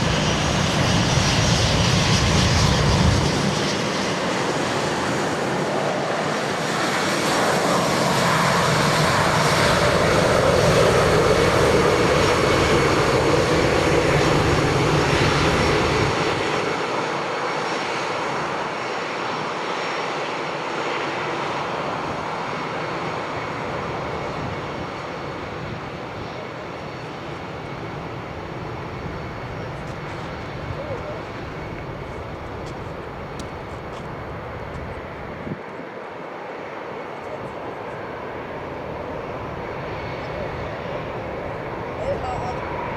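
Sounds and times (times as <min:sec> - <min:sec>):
jet airliner taking off: 0:00.0 - 0:42.9.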